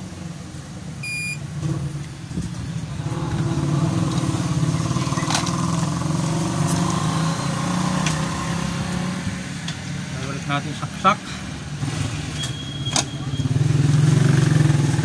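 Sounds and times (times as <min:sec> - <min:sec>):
engine running: 0:00.8 - 0:12.4
short high beep: 0:01.0 - 0:01.4.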